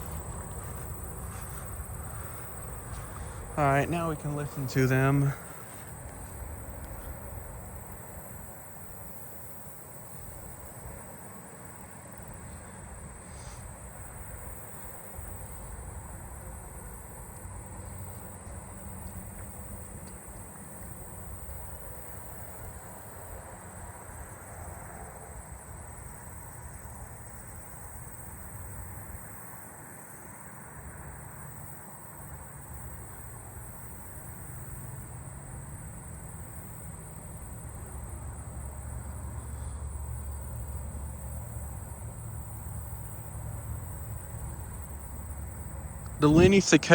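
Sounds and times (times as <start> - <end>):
crickets and katydids trilling: 0.0 - 46.9.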